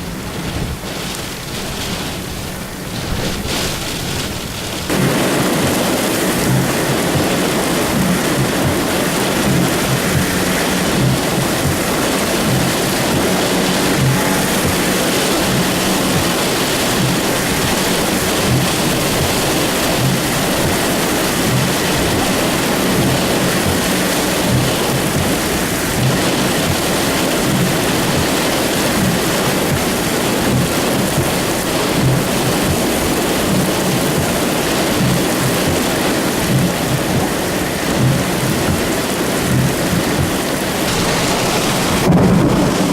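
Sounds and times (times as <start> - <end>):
heavy rain pouring: 0.0 - 42.9
low thumps: 2.9 - 28.4, 39.6 - 42.9.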